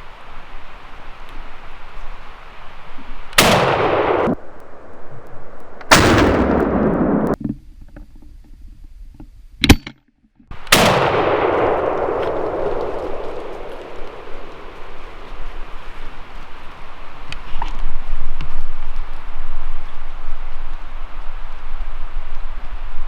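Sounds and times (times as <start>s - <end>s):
shotgun blasts with echo: 3.4s - 4.6s, 5.8s - 7.4s, 10.6s - 15.3s.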